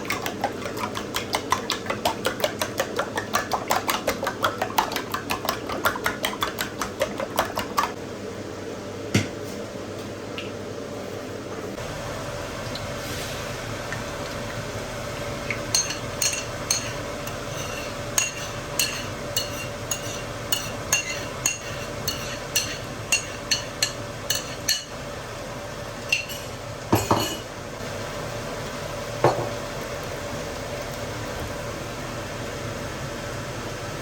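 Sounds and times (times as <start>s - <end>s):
utensil clinking against dish: 15.6s - 24.9s, 26.1s - 27.5s.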